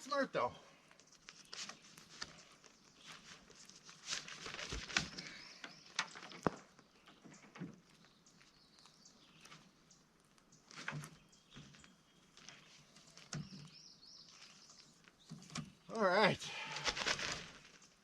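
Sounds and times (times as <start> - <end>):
tent fabric rustling: 1.1 - 5.4, 16.6 - 18.0.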